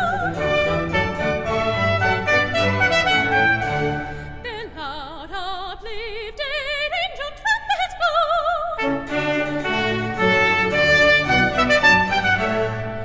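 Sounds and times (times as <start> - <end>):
soprano singing with vibrato: 0.0 - 1.0, 4.4 - 9.9
orchestra playing: 0.0 - 4.4, 8.8 - 13.0.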